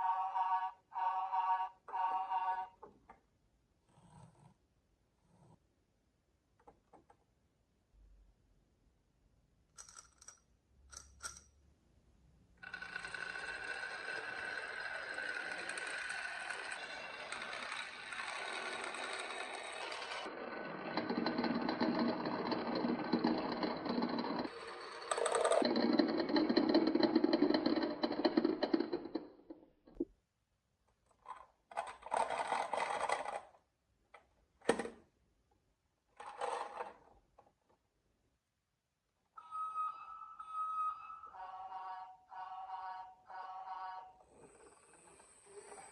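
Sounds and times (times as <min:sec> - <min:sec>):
marbles rolling down wooden track: 0:12.6 - 0:29.4, 0:31.8 - 0:33.5, 0:36.2 - 0:37.0
marbles clicking: 0:12.7 - 0:20.3.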